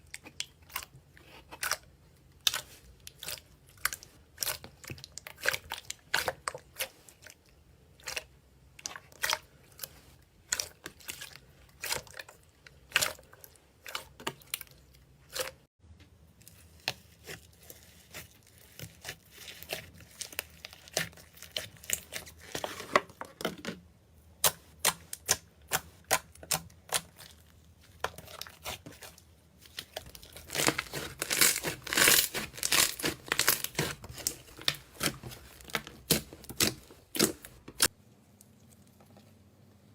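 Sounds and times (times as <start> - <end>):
slime crackling and popping: 29.8 - 37.9.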